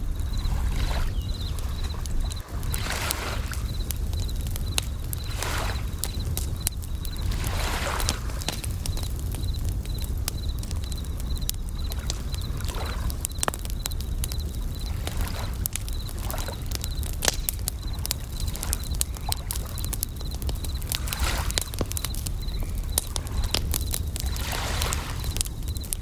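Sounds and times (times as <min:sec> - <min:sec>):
waves rushing: 0:00.0 - 0:10.3, 0:23.0 - 0:25.5
campfire crackling: 0:00.0 - 0:26.0
crickets chirping: 0:00.0 - 0:26.0.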